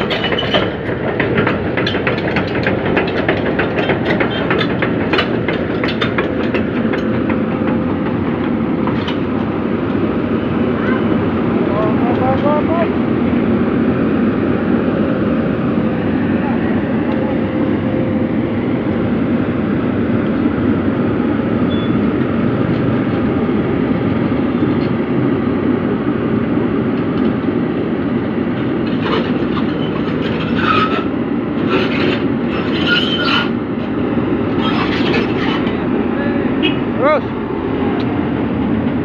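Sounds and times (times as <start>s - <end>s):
sharp knocks and squeaks: 0.0s - 7.4s, 28.9s - 33.6s, 34.5s - 35.8s
heavy diesel engine running: 0.0s - 39.0s.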